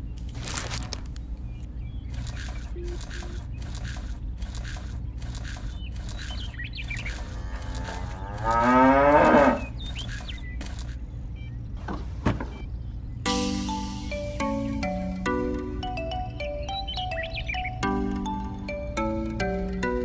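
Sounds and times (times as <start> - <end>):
steady low hum: 0.0 - 20.0
regular ticking: 2.1 - 11.0, 13.3 - 20.0
cow mooing: 7.3 - 9.8.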